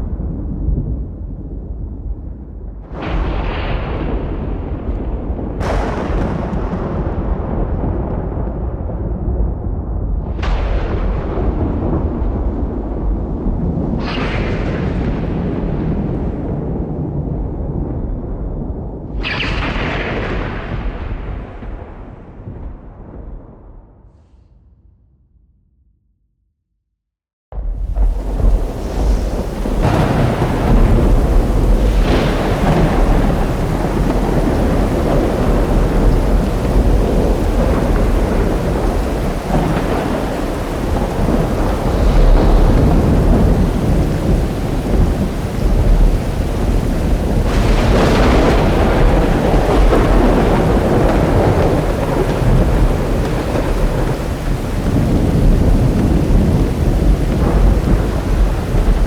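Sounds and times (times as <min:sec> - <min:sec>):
sharp thunder claps: 0:00.0 - 0:23.9, 0:27.5 - 0:59.0
rolling thunder: 0:00.0 - 0:24.1, 0:27.5 - 0:59.0
steady rain: 0:02.8 - 0:22.0, 0:27.6 - 0:59.0.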